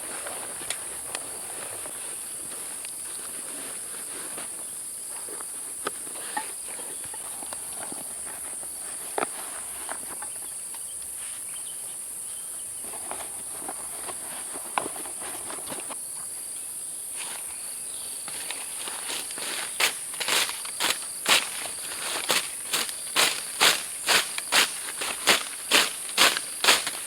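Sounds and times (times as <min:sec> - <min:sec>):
insects buzzing: 0:00.0 - 0:27.0
snaps and rustles on forest floor: 0:18.2 - 0:27.0.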